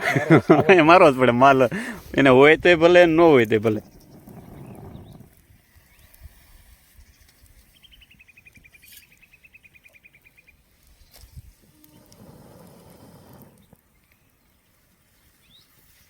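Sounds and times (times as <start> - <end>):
bird trilling: 3.6 - 5.3.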